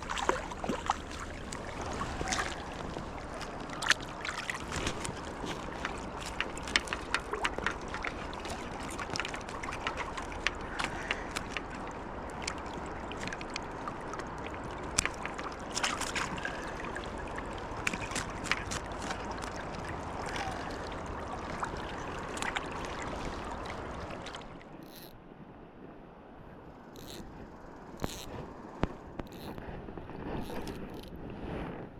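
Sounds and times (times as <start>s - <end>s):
river water rushing and splashing: 0.0s - 24.8s
small sharp splashes and clicks: 0.0s - 25.2s.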